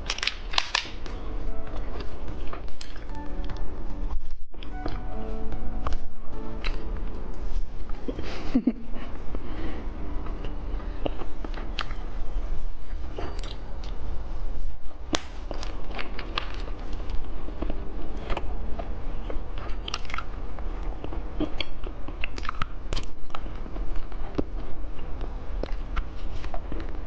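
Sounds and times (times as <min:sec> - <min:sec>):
steady low hum: 0:00.0 - 0:27.0
candy crunching and chewing: 0:15.2 - 0:27.0.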